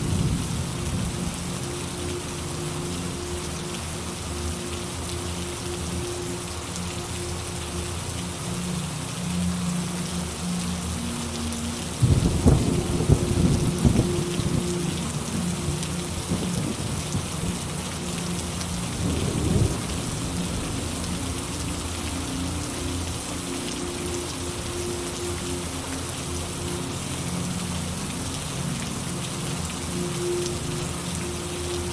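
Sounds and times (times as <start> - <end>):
steady rain falling: 0.0 - 31.9
thunder crack and rumble: 12.0 - 14.1, 19.0 - 20.9.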